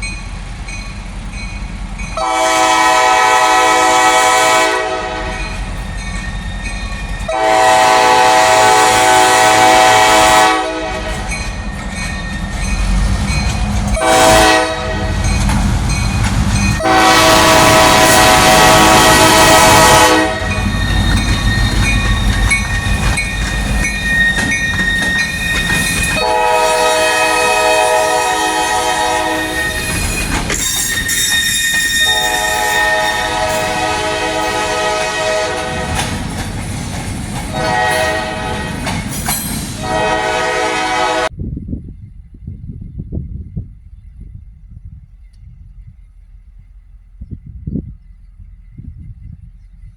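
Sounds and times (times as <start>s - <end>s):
train engine and wheels rumbling: 0.0s - 49.9s
locomotive air horn blasts: 2.2s - 5.6s, 7.3s - 11.3s, 14.0s - 15.2s, 16.8s - 22.0s, 26.1s - 30.2s, 30.8s - 36.0s, 37.5s - 38.9s, 39.8s - 41.3s.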